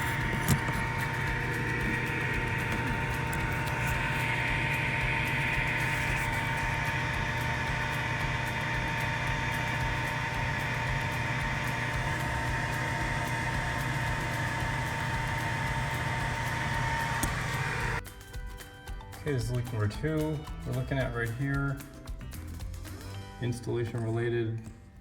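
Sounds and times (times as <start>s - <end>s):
pump humming: 0.0s - 18.0s
thin constant whine: 0.0s - 18.0s.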